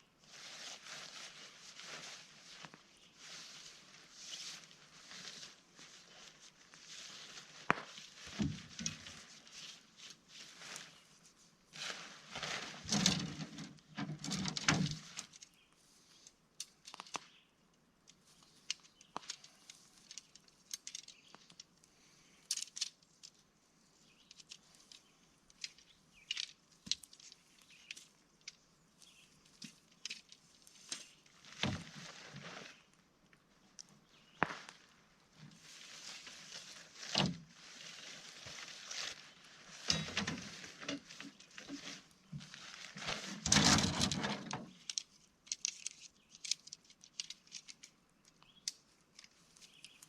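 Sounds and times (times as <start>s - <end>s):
fabric rustling: 0.2s - 12.9s.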